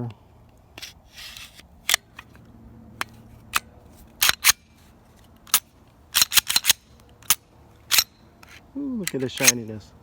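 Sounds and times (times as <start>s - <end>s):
metallic clicks and snaps of pistol: 5.4s - 9.6s.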